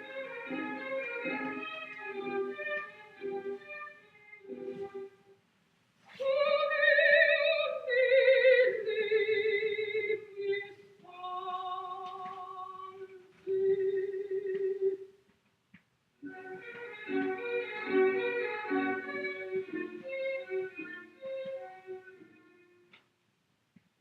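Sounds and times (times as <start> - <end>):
opera-style singing: 6.1 - 15.1, 16.6 - 22.3.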